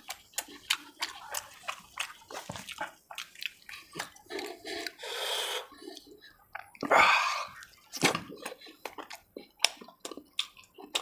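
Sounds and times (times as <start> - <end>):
wet chewing and smacking: 0.0 - 11.0.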